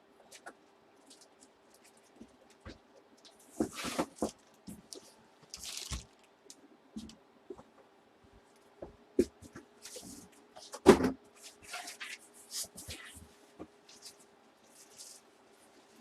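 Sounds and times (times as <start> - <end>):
packaging rustling: 3.2 - 6.4.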